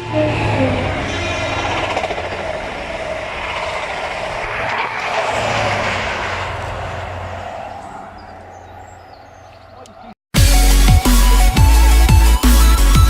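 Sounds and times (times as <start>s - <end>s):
train rumbling past: 0.0s - 9.7s.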